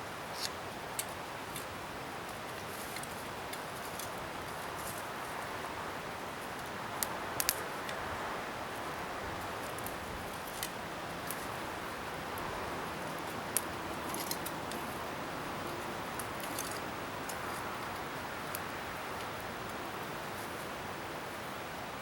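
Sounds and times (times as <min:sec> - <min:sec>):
bonfire hissing: 0:00.0 - 0:22.0
fire crackles and pops: 0:06.1 - 0:15.0, 0:15.6 - 0:20.2.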